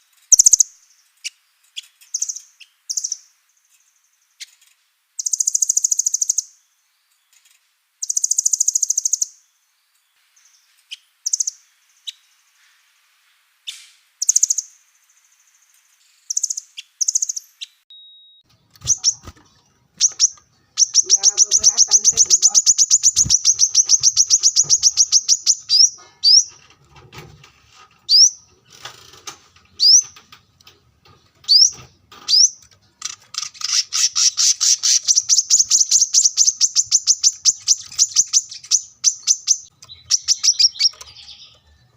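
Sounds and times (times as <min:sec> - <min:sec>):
songbird chirps: 0:00.0 - 0:41.9
songbird rattling trills: 0:18.8 - 0:26.6, 0:31.5 - 0:41.6.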